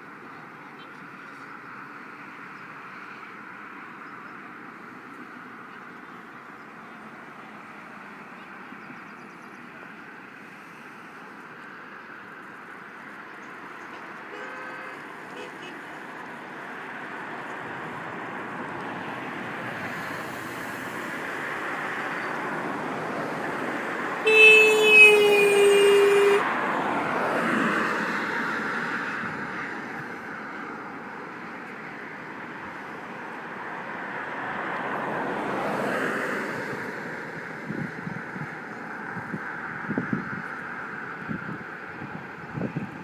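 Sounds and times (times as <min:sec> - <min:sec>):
road traffic passing: 0:00.0 - 0:43.0
vehicle horn: 0:13.9 - 0:15.8, 0:24.2 - 0:26.5.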